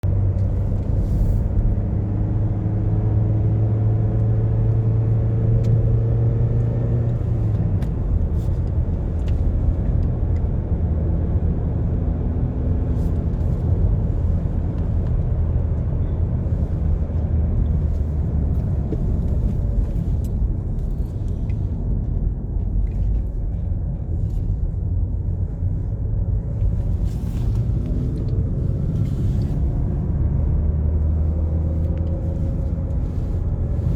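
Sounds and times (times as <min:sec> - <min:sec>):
car engine: 0:00.0 - 0:33.9.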